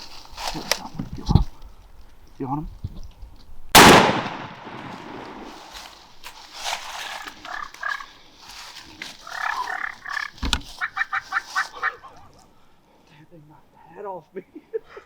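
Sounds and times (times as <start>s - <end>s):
shotgun report: 3.8s - 5.5s
wild turkeys calling: 7.1s - 8.2s, 9.1s - 12.4s.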